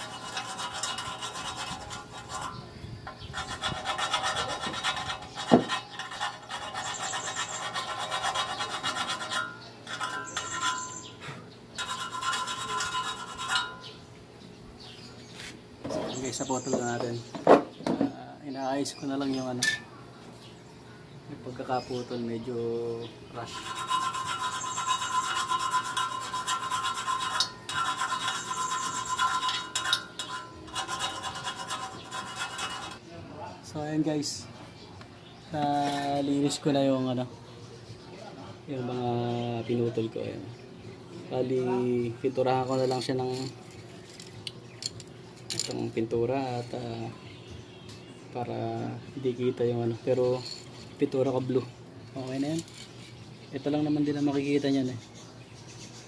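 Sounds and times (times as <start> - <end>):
hand file rasping on metal pipe: 0.0 - 11.2, 11.8 - 13.9, 23.4 - 33.0
sanding metal edge: 0.0 - 11.2, 11.8 - 14.0, 23.4 - 33.0.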